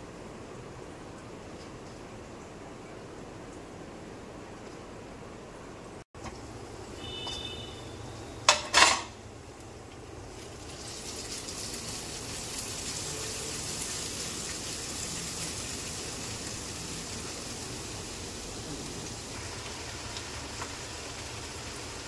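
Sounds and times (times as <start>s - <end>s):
noodles sizzling in hot oil: 6.7s - 22.0s.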